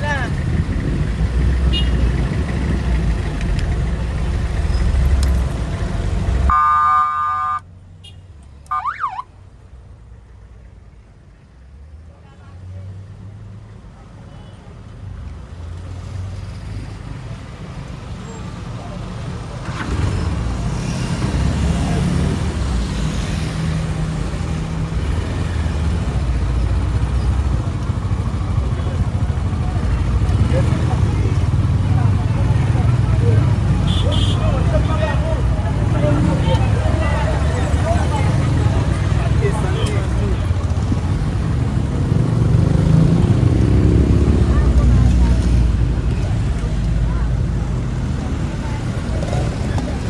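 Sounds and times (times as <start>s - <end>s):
street traffic rumble: 0.0s - 50.0s
vehicle horn: 1.7s - 2.0s, 6.5s - 9.0s, 33.8s - 34.5s.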